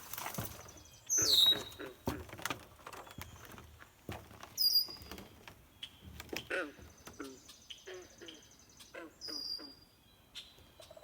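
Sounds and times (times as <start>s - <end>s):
birds whistling falling notes: 0.6s - 1.8s.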